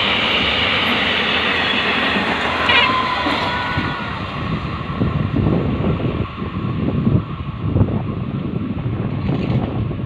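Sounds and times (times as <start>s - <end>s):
freight train rumbling: 0.0s - 10.0s
wind buffeting the microphone: 2.2s - 10.0s.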